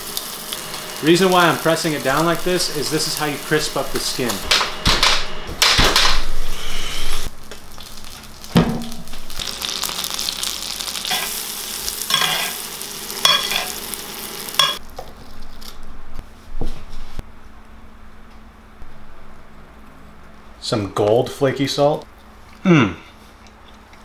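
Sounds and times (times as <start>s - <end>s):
fish sizzling in butter: 0.0s - 4.4s, 6.8s - 14.8s.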